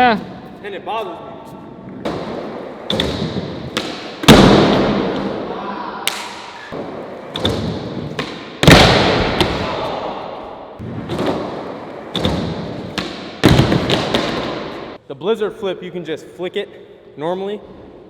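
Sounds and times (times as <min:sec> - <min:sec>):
skateboard slams echoing: 0:02.0 - 0:10.1, 0:10.8 - 0:15.0.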